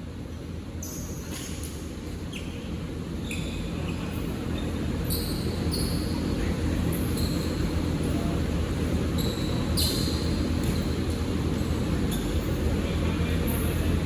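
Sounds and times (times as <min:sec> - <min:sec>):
low hall and crowd rumble: 0:02.8 - 0:14.0
shoes squeaking on court: 0:03.2 - 0:07.9, 0:08.9 - 0:12.6.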